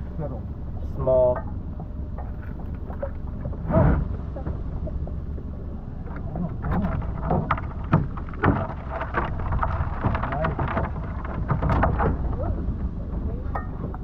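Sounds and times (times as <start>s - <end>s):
steady low rumble: 0.0s - 14.0s
clicks and knocks of crabs: 6.0s - 14.0s.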